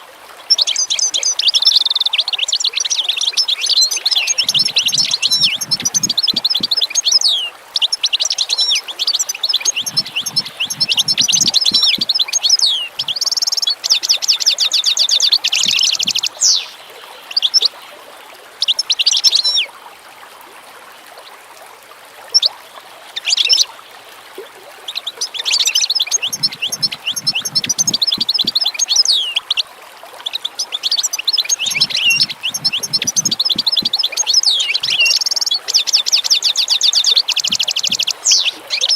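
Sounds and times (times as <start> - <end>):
songbirds chirping: 0.6 - 17.8, 24.8 - 38.9
bird trilling: 3.6 - 16.8, 25.2 - 29.5, 30.3 - 38.9.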